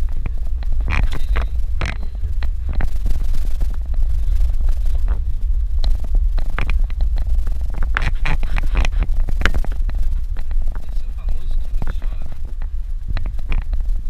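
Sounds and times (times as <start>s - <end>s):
car rumbling on dirt road: 0.0s - 14.0s.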